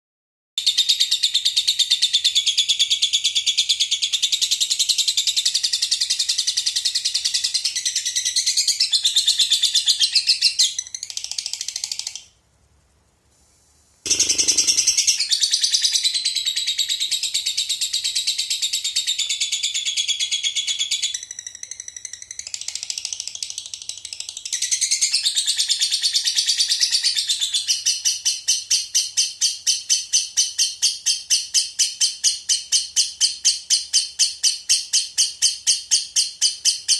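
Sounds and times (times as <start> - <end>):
lovebird chattering trill: 14.1 - 23.3.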